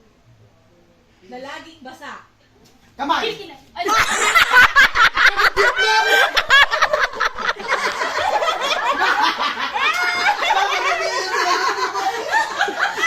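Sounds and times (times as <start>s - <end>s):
people laughing: 3.9s - 13.0s.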